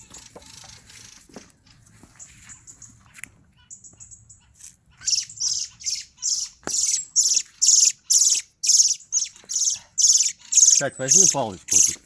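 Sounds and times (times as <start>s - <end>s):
bird harsh chack calls: 2.6s - 12.0s.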